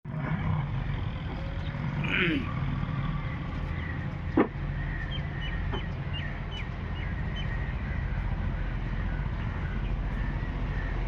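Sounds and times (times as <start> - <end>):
diesel engine rumbling: 0.0 - 11.0
small birds chirping: 3.2 - 11.0.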